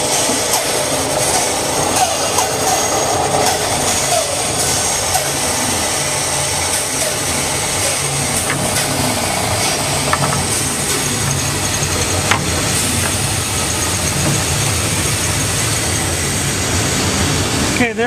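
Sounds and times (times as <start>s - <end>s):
bandsaw running: 0.0s - 18.0s.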